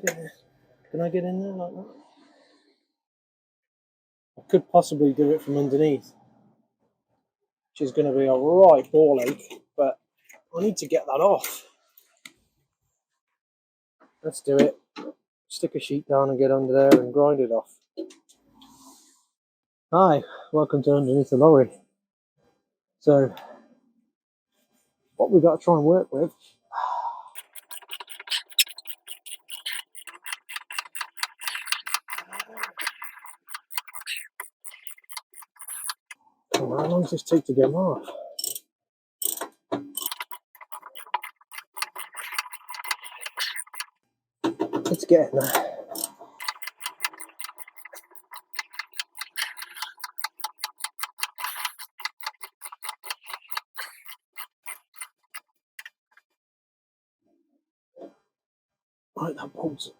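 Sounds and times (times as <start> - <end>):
rapid sharp clicking: 27.4 - 36.2, 40.0 - 43.9, 45.4 - 55.5.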